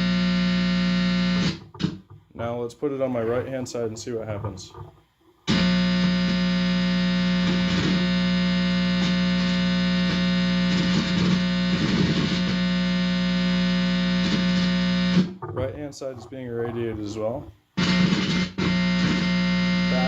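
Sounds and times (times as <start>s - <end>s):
guitar amplifier buzz: 0.0s - 2.3s, 5.5s - 15.4s, 17.7s - 20.0s.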